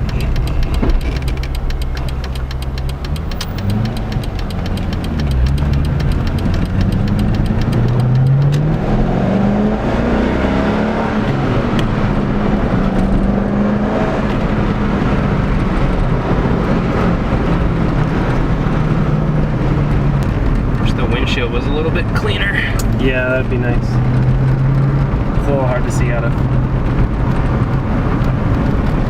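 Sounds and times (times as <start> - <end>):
car engine accelerating: 0.0 - 29.0.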